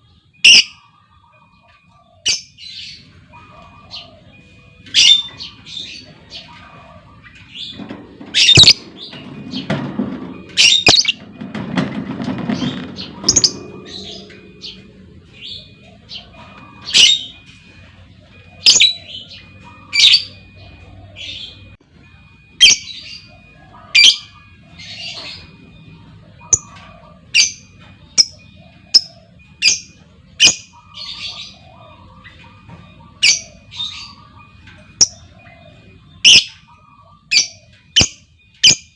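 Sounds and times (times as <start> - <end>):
lovebird squawking: 4.9 - 9.2, 12.6 - 17.5.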